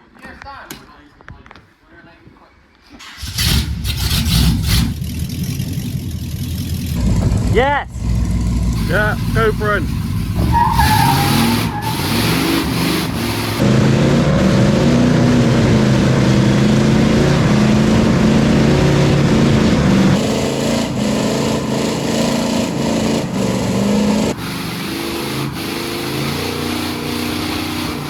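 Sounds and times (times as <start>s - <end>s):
pickup engines revving hard: 3.2s - 28.0s.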